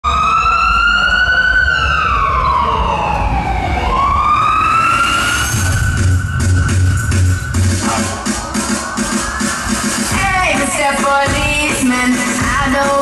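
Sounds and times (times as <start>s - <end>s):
siren wail: 0.0s - 9.3s
deep bass beat: 5.6s - 13.0s.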